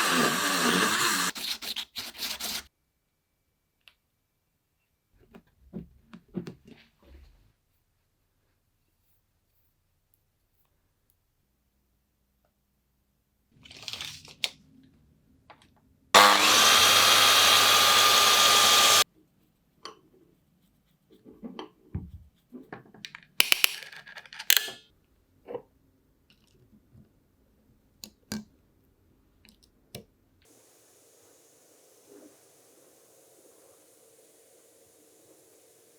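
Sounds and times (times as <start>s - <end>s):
loud steady machine noise: 16.2s - 19.0s.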